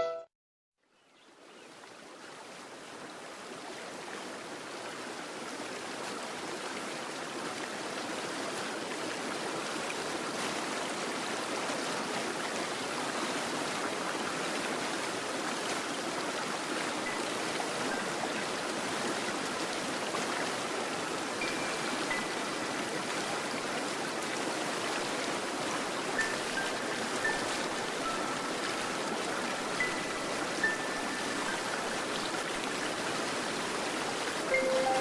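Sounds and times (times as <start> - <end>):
high thin notes: 0.0 - 0.3, 34.5 - 35.0
stream water running: 0.9 - 35.0.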